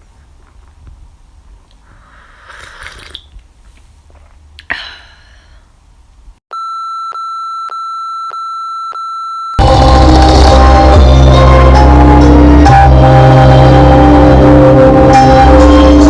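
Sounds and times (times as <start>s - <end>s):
music: 9.6s - 16.0s.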